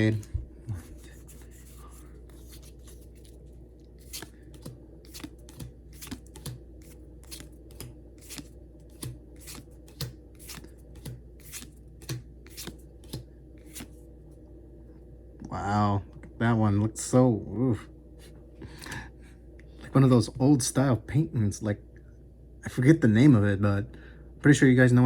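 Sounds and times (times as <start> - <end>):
trading cards snapping: 4.0 - 14.0.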